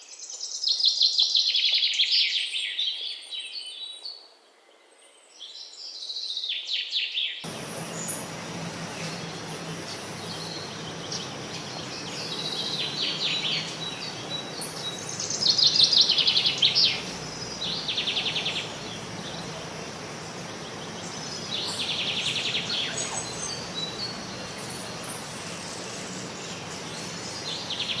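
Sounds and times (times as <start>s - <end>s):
steady background hiss: 7.4s - 28.0s
birds buzzy rattling trills: 7.5s - 28.0s.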